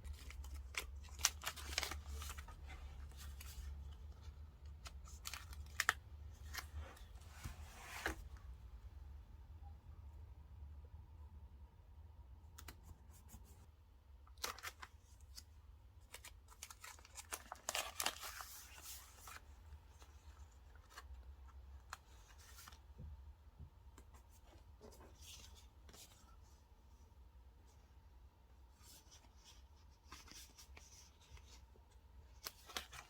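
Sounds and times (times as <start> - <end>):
paper rustling: 0.0 - 8.2.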